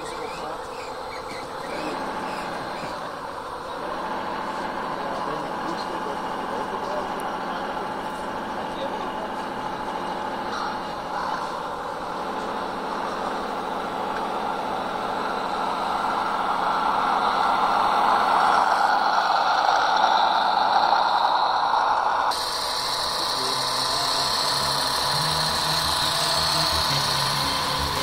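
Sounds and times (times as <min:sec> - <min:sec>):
toy truck driving past: 0:10.2 - 0:28.0.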